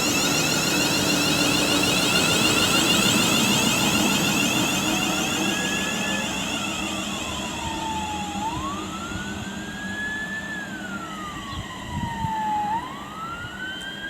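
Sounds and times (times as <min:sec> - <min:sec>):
emergency siren wailing: 0:00.0 - 0:14.0.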